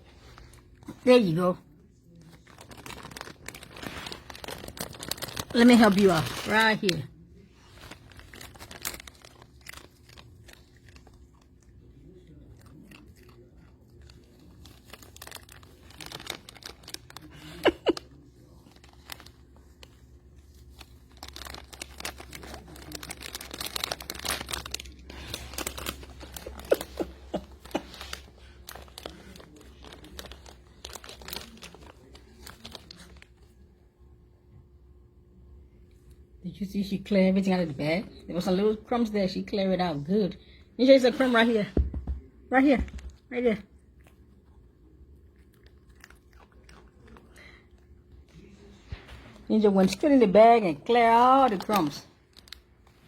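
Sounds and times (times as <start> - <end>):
chip bag crinkling: 0.0 - 33.6, 45.3 - 53.0
dog crunching chips: 0.0 - 33.8, 42.6 - 53.0.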